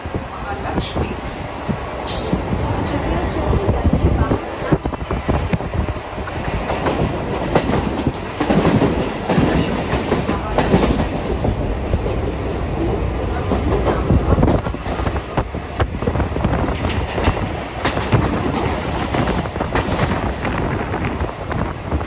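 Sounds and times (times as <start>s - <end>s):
train wheels rumbling on track: 0.0s - 22.0s
wheels clacking over rail joints: 6.3s - 20.5s.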